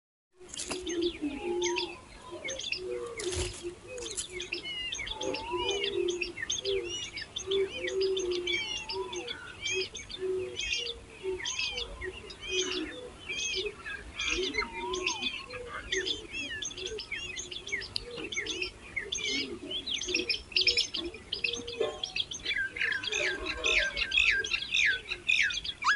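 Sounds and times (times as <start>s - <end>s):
nestlings chirping: 0.5s - 25.9s
lower repeated bird call: 0.6s - 25.9s.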